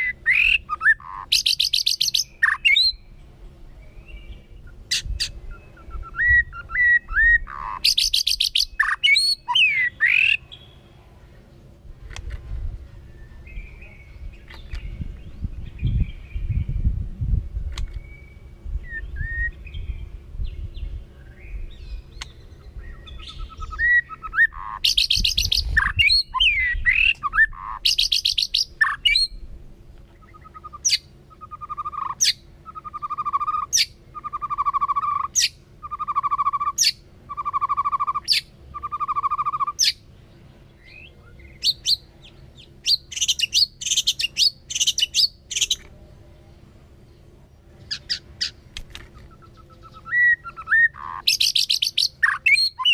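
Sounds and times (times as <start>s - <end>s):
bird singing whistles and trills: 0.0s - 3.1s, 3.8s - 10.9s, 17.8s - 29.4s, 30.1s - 40.0s, 40.8s - 45.9s, 47.9s - 52.9s.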